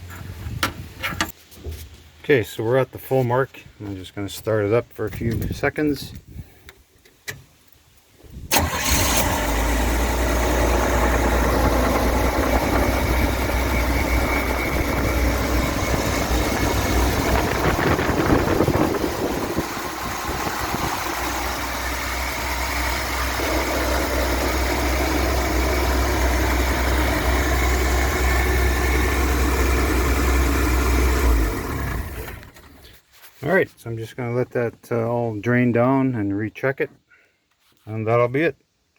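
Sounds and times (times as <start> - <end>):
van engine cranking and idling: 8.5 - 33.0.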